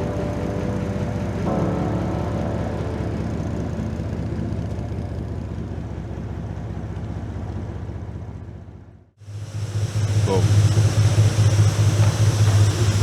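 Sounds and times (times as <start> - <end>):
background music: 0.0 - 5.3
boat engine running: 0.0 - 13.0
wind: 0.0 - 13.0.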